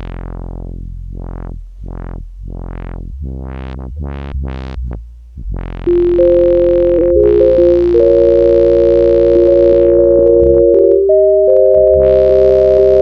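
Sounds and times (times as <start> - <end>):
deep synth bass: 0.0 - 13.0
synthesizer notes and chord: 5.9 - 13.0.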